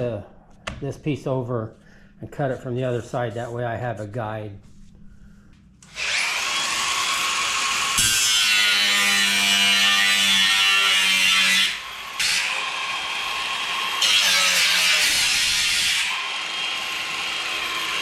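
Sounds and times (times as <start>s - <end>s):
power saw cutting wood: 5.8s - 18.0s.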